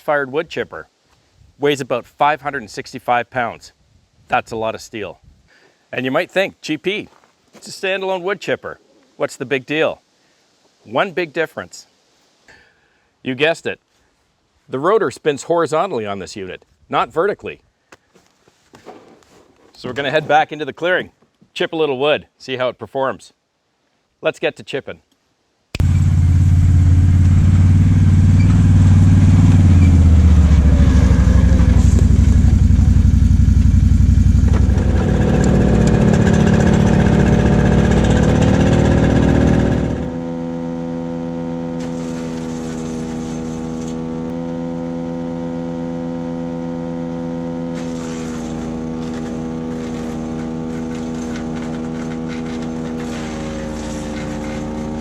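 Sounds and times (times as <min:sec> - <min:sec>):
wood chipper engine running: 0:25.8 - 0:55.0.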